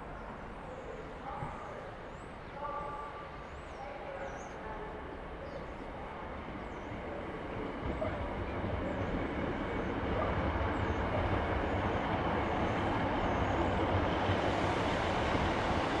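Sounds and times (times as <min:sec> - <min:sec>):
diesel train passing: 0:04.5 - 0:16.0.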